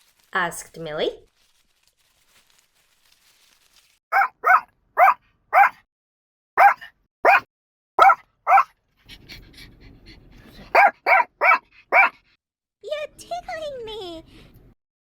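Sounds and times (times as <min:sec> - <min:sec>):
puppy yipping: 0:04.1 - 0:05.8, 0:06.6 - 0:08.7, 0:10.8 - 0:12.1.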